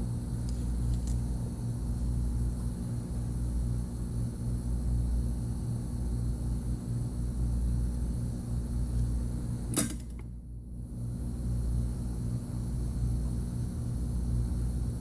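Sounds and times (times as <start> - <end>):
low mechanical hum: 0.0 - 15.0
sharp click: 9.7 - 10.3.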